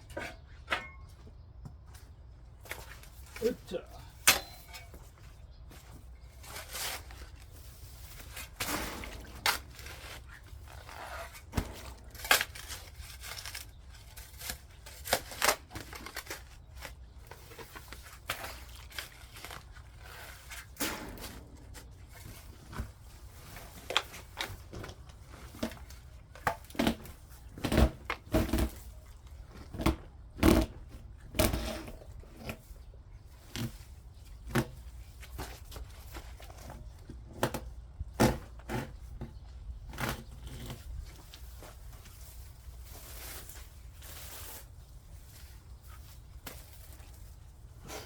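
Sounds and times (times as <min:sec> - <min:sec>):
garden tool scraping soil: 0:06.3 - 0:24.5, 0:31.4 - 0:32.8, 0:39.9 - 0:48.0.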